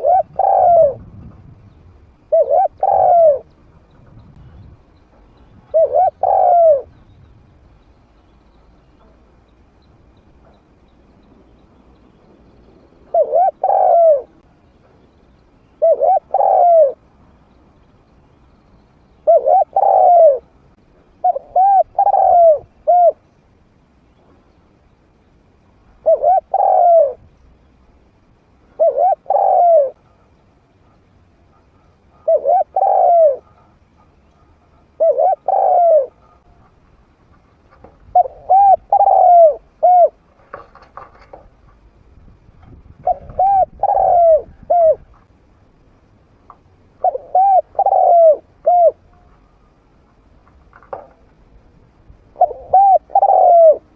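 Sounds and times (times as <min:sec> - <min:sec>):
dove cooing: 0:00.0 - 0:01.3, 0:02.3 - 0:04.6, 0:05.5 - 0:07.0, 0:13.0 - 0:14.5, 0:15.8 - 0:17.1, 0:19.2 - 0:20.6, 0:21.2 - 0:23.2, 0:26.0 - 0:27.2, 0:28.7 - 0:36.8, 0:37.7 - 0:41.4, 0:43.0 - 0:45.2, 0:47.0 - 0:49.3, 0:52.3 - 0:53.9.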